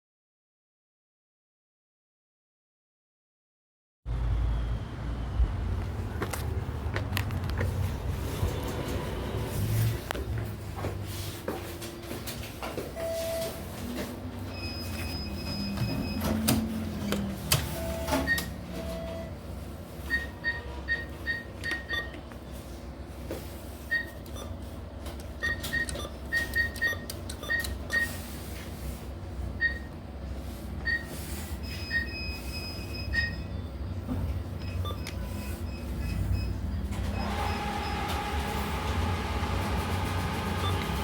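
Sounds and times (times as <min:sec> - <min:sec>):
keypad beeping: 0:14.5 - 0:19.3, 0:20.1 - 0:22.2, 0:23.9 - 0:24.6, 0:25.4 - 0:28.2, 0:30.8 - 0:33.6, 0:34.6 - 0:38.0, 0:40.6 - 0:41.0.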